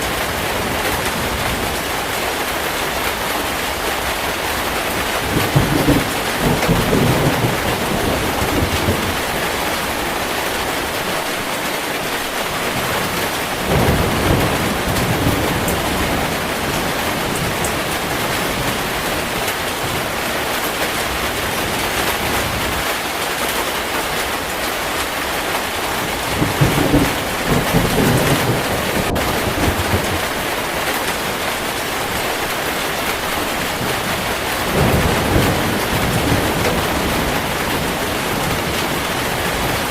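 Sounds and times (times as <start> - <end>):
thunder rumbling: 0.0 - 11.5, 12.4 - 22.9, 24.4 - 39.9
heavy rain falling: 0.0 - 39.9.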